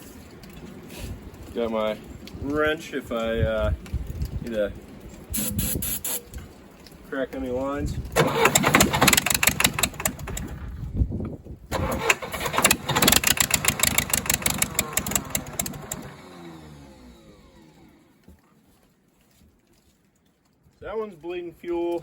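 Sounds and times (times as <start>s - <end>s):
diesel engine cranking: 8.1s - 10.9s, 11.7s - 18.3s.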